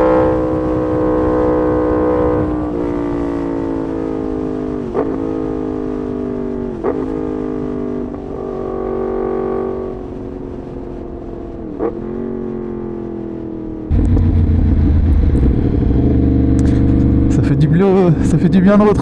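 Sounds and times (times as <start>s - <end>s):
motorcycle engine at low revs: 0.0s - 19.0s
sharp engine revving blips: 13.9s - 18.4s.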